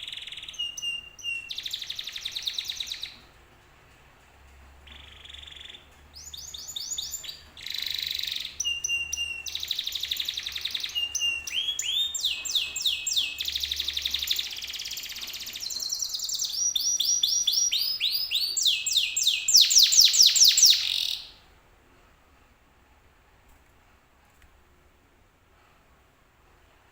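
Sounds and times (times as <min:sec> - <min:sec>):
canary singing trills: 0:00.0 - 0:03.3, 0:04.8 - 0:21.4.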